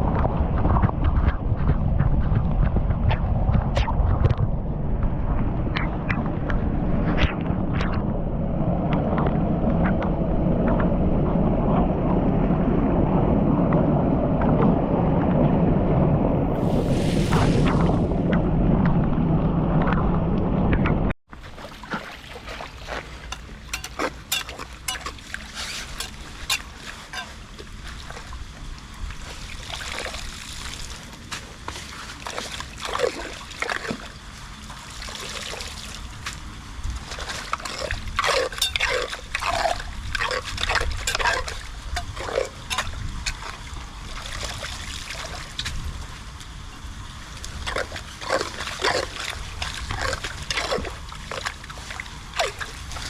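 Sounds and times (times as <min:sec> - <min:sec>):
steady low rumble: 0:00.0 - 0:53.0
water splashing and trickling: 0:21.3 - 0:53.0.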